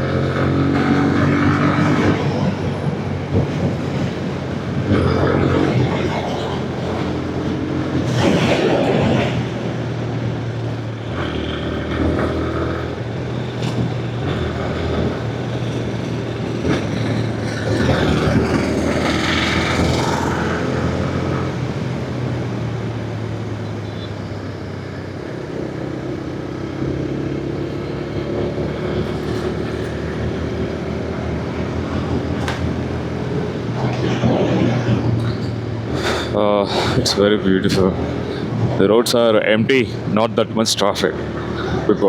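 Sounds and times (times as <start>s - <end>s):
rush of wind noise: 0.0s - 42.0s
motorcycle engine running: 9.5s - 33.9s.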